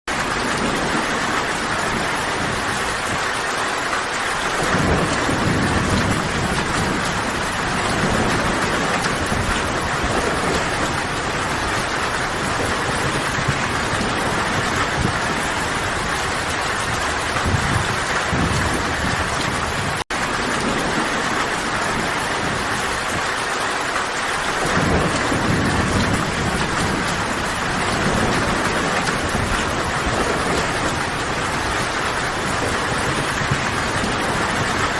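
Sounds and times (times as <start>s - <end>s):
heavy rain: 0.1s - 34.9s
rolling thunder rumbles: 0.1s - 34.9s.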